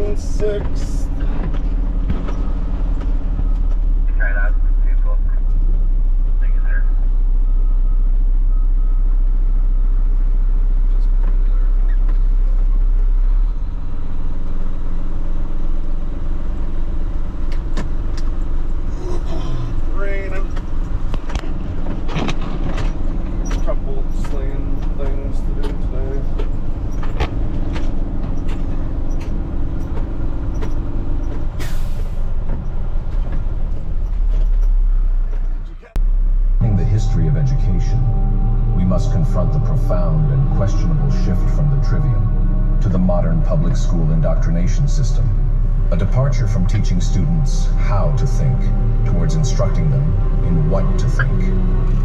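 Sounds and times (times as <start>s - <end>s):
diesel truck engine running: 0.0s - 52.0s
air brake hiss: 31.6s - 32.4s.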